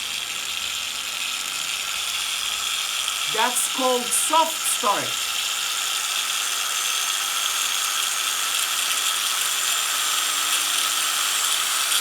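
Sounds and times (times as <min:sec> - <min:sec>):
angle grinder motor whirring: 0:05.2 - 0:12.0.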